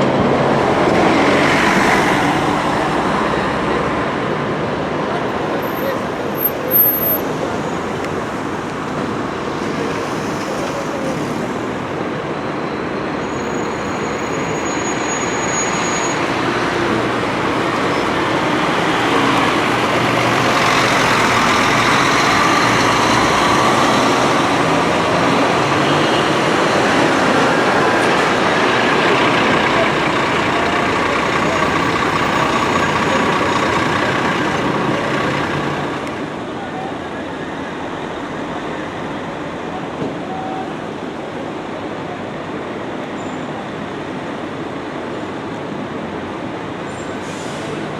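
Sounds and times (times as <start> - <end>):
road traffic noise: 0.0 - 47.9
bus diesel engine running: 13.5 - 43.0.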